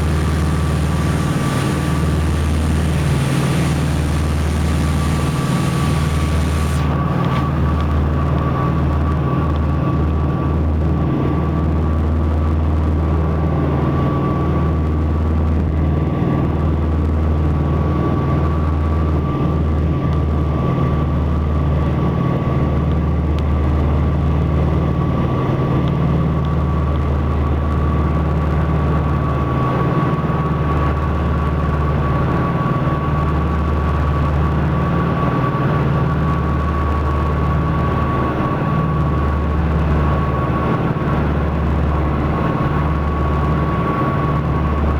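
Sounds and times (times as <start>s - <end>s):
thin steady whine: 0.0s - 8.5s
propeller aircraft engines droning: 0.0s - 10.1s.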